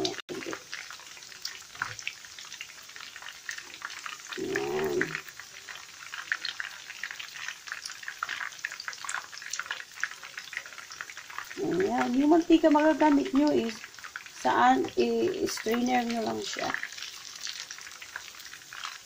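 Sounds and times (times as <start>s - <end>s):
meatballs deep-frying in oil: 0.0s - 19.0s.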